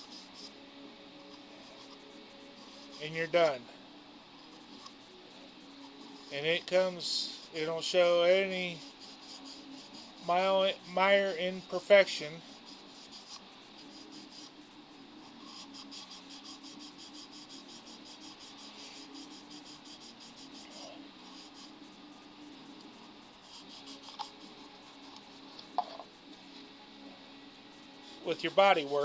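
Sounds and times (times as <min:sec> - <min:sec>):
sandpaper rubbing: 0:00.0 - 0:00.6, 0:01.6 - 0:03.6, 0:04.8 - 0:11.0, 0:11.6 - 0:22.1, 0:22.8 - 0:25.5, 0:27.8 - 0:29.0.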